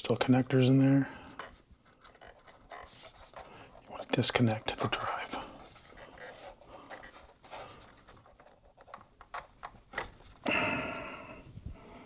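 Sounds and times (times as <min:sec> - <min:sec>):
faint clicks and scratches: 0:01.2 - 0:10.5.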